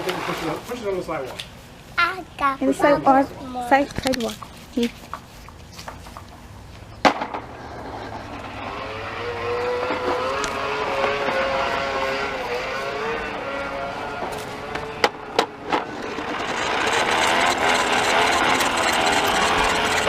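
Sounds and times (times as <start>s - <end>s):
toy lawn mower motor whir: 7.5s - 20.0s.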